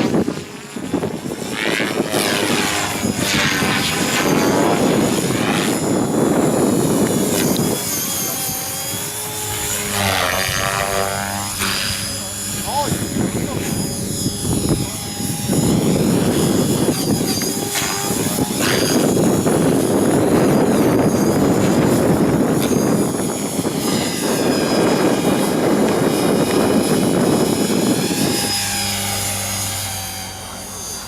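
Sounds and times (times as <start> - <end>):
helicopter rotor noise: 0.0 - 31.0
high motor whine: 0.0 - 31.0.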